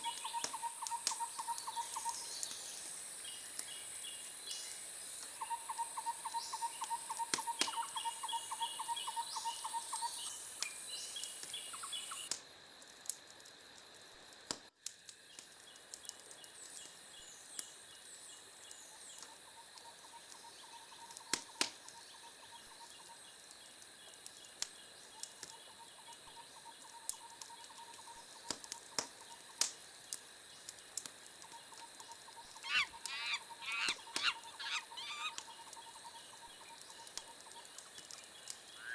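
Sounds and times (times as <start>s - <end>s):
wood fire crackling: 9.9s - 38.8s
shrill insect-like hiss: 32.3s - 35.9s
birds chirping: 32.5s - 35.8s
pulsing trilling call: 32.6s - 35.4s.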